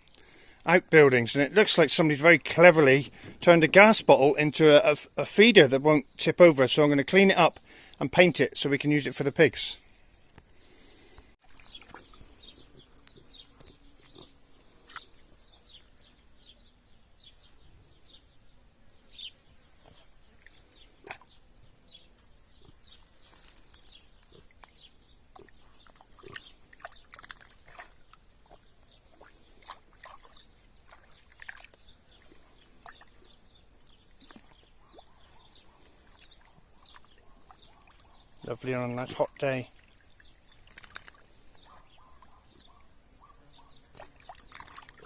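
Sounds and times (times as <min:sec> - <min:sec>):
faint pig sounds: 0:25.3 - 0:26.6.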